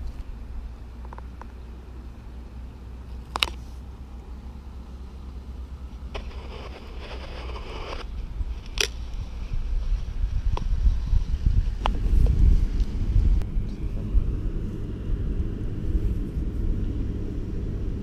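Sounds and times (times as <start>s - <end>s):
train rumbling: 4.0s - 18.0s.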